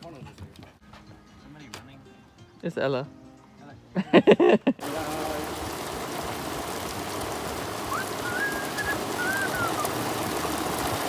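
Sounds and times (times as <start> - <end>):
steady rain falling: 4.1 - 11.0
faint gliding whistle: 7.8 - 10.1.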